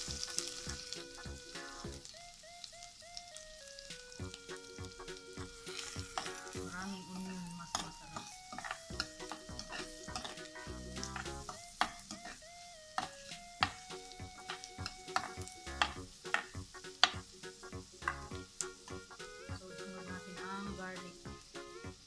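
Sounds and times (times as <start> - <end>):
onion sizzling in oil: 0.0 - 22.0
spatula scraping and tapping pan: 4.5 - 12.4, 13.0 - 19.4.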